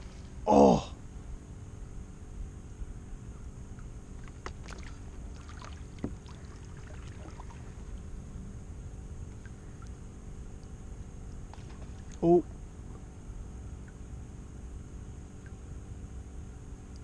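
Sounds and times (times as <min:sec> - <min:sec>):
aerator bubbling and humming: 0:00.0 - 0:17.0
light knocks and splashes: 0:04.2 - 0:08.0, 0:11.4 - 0:12.2.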